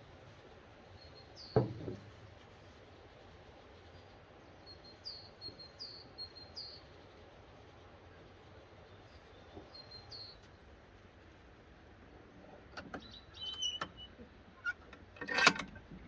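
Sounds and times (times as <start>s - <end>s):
birds chirping: 12.4s - 14.2s.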